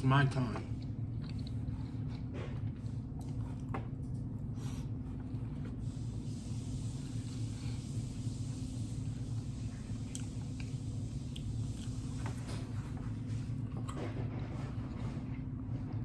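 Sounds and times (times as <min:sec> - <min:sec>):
chewing and lip-smacking: 0:00.7 - 0:04.3, 0:10.0 - 0:12.7.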